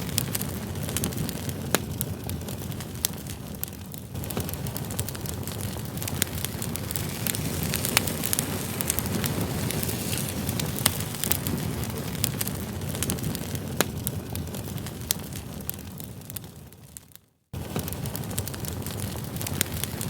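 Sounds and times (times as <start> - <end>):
campfire flame rush: 0.0 - 16.8, 17.6 - 20.0
burning logs popping and crackling: 0.0 - 20.0.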